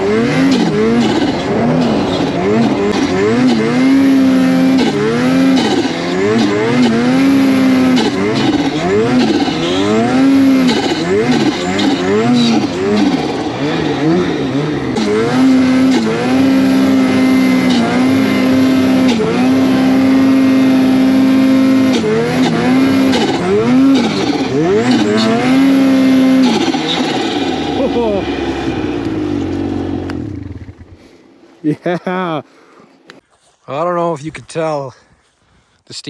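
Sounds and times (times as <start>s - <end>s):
snowmobile engine revving: 0.0s - 32.5s.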